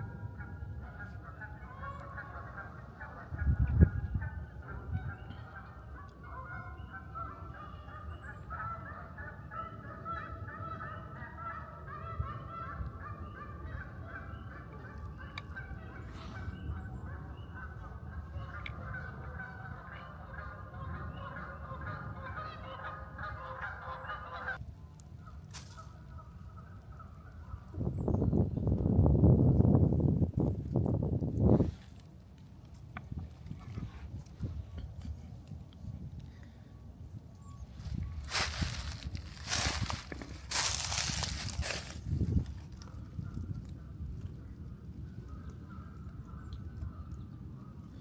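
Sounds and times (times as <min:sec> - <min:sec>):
geese honking: 0:00.4 - 0:24.6, 0:37.4 - 0:43.6.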